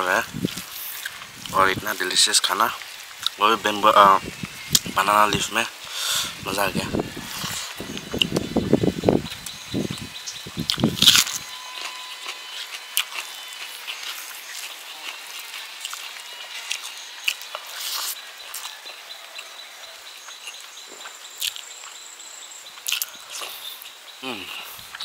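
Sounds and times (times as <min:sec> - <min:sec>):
outdoor hiss: 0:00.0 - 0:11.6, 0:12.2 - 0:18.5
faint thin high tones: 0:11.3 - 0:15.8
wet chewing smacks: 0:22.8 - 0:23.6.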